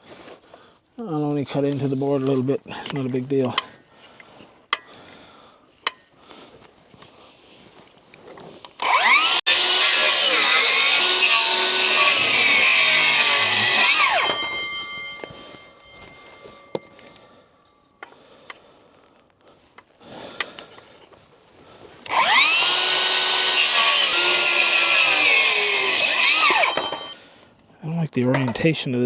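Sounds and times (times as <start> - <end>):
circular saw cutting wood: 8.8 - 16.9, 22.0 - 27.2.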